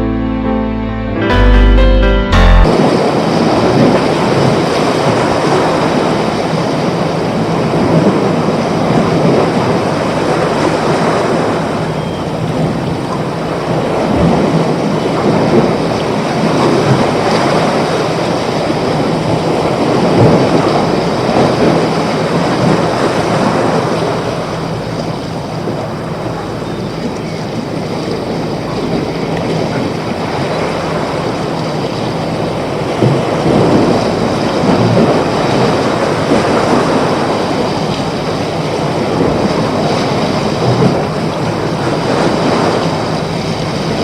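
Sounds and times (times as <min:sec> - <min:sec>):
rushing water: 0:02.7 - 0:44.0.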